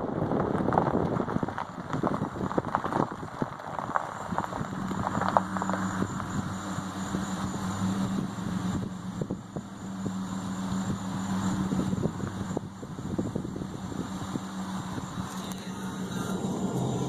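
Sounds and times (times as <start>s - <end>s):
soft clicks and crackles: 0.4s - 6.3s.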